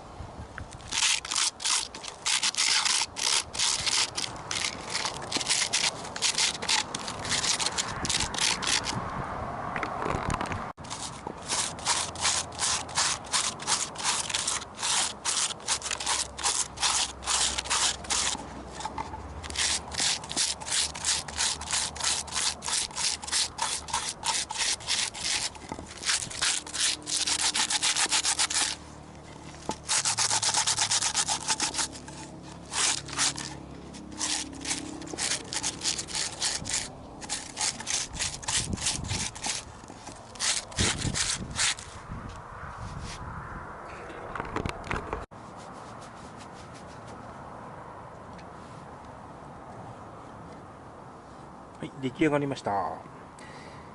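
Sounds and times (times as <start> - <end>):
sandpaper rubbing on wood: 0.9 - 8.9, 10.8 - 28.8, 29.6 - 42.0.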